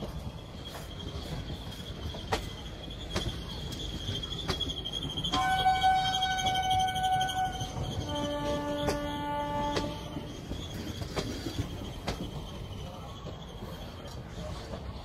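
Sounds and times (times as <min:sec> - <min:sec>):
rail joint clicks: 0:00.0 - 0:15.0
train wheels rumbling on rail: 0:00.0 - 0:15.0
low train horn: 0:05.3 - 0:10.4
high-pitched train horn: 0:05.3 - 0:10.5.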